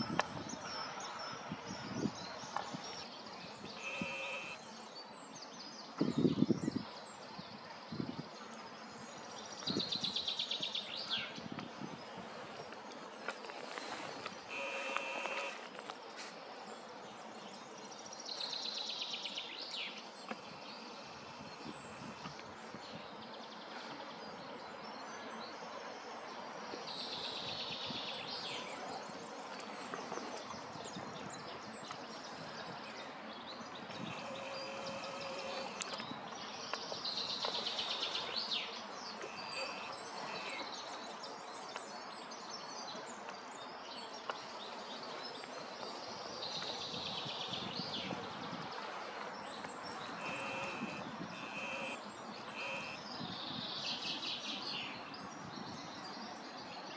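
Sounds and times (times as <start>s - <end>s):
songbird singing: 0.0s - 56.9s
outdoor hiss: 12.4s - 16.5s, 37.1s - 40.7s.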